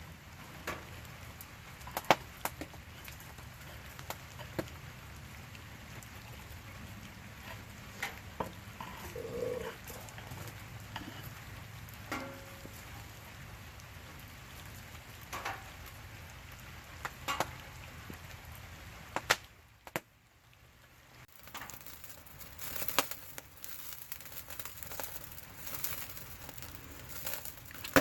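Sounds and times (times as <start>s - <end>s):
campfire crackling and popping: 1.4s - 5.2s, 21.3s - 28.0s
rain hiss: 21.2s - 28.0s.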